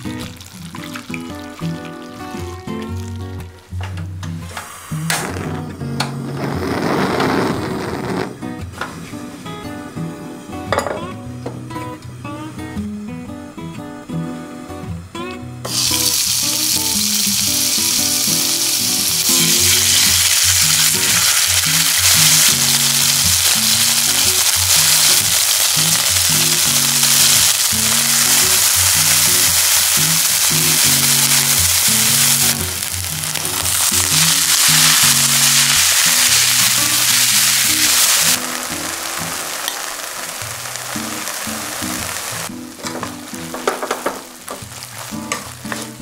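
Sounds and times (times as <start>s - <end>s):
meat sizzling in oil: 0.0s - 3.3s, 15.7s - 46.0s
guitar music: 0.0s - 46.0s.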